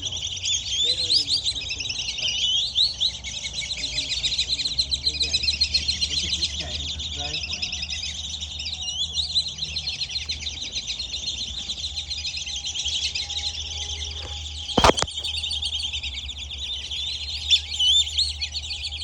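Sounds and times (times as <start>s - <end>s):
ducks whistling and chirping: 0.0s - 19.0s
sharp knock: 14.8s - 15.2s.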